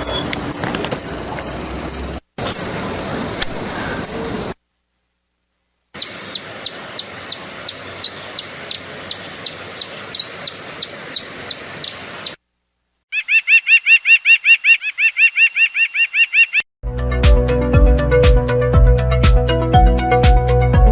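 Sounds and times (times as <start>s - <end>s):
high falling bird chirps: 0.0s - 2.8s, 3.5s - 4.6s, 5.9s - 12.4s, 13.1s - 16.7s
faint background hiss: 4.4s - 13.1s
lower-pitched bird call: 6.0s - 12.4s, 13.1s - 16.6s.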